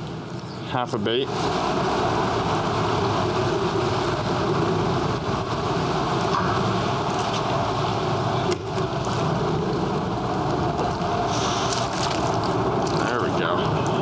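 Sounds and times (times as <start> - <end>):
cars crossing bridge overhead: 0.0 - 14.0.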